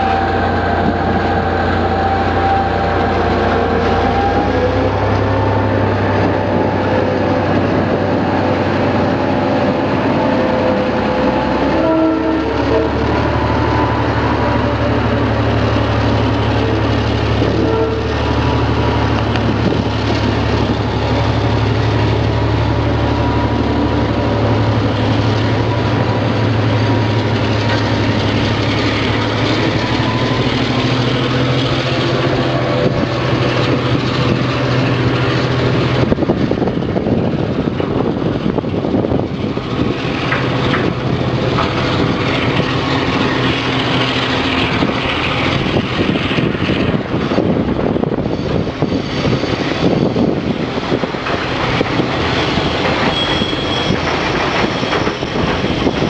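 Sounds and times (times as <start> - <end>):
high wheel squeal: 0.0 - 6.3, 22.8 - 33.5, 52.1 - 56.0
locomotive engine hum: 0.0 - 56.0
train wheels rumbling on rails: 0.0 - 56.0.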